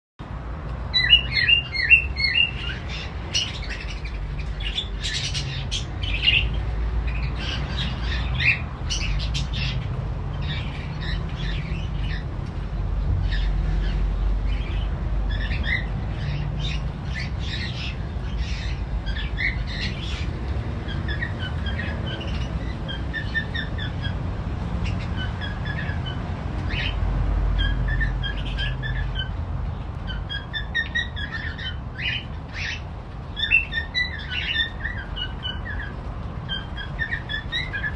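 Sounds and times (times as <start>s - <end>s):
parrots chirping and squawking: 0.9s - 37.9s.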